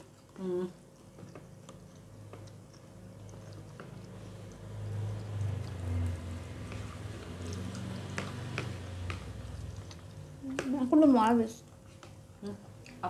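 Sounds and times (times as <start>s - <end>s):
chewing rumble: 0.0s - 13.0s.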